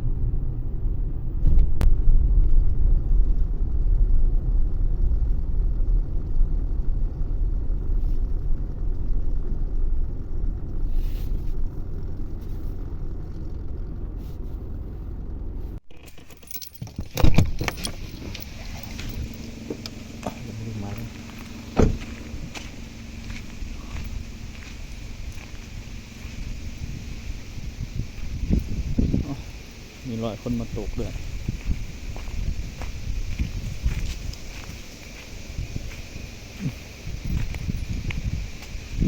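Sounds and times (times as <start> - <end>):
low rumble: 0.0 - 39.0
sharp clicks and rattles: 11.5 - 32.4.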